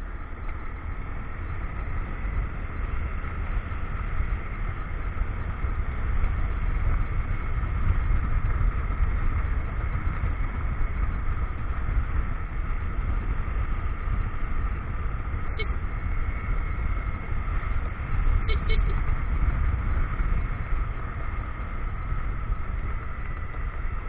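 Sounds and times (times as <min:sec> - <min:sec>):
motorcycle engine running: 0:00.0 - 0:24.0
wind and road noise: 0:00.0 - 0:24.0.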